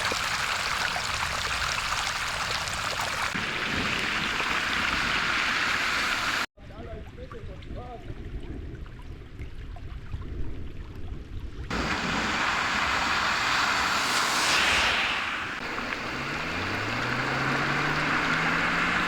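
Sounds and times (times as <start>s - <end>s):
heavy rain hissing: 3.2s - 6.5s, 11.7s - 19.0s
low engine hum: 11.7s - 19.0s.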